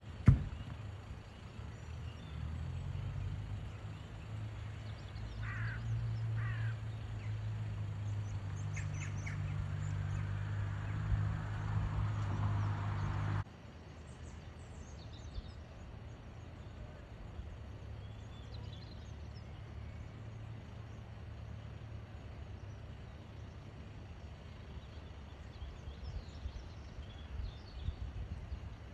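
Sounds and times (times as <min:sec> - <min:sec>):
birds chirping and singing: 0:00.4 - 0:13.4.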